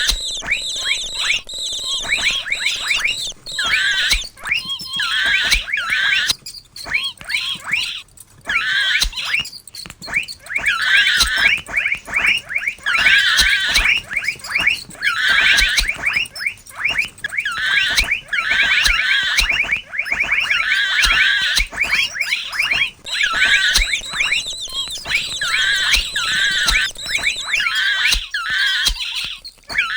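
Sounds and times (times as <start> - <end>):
sharp clicks: 0.0 - 4.8, 18.9 - 29.1
mouse squeaking: 0.0 - 29.9.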